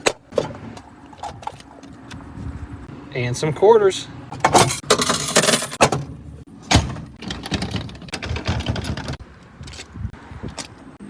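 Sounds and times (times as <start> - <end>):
coins clinking and clattering: 4.6 - 5.8
metal box knocks and clanks: 6.7 - 9.2.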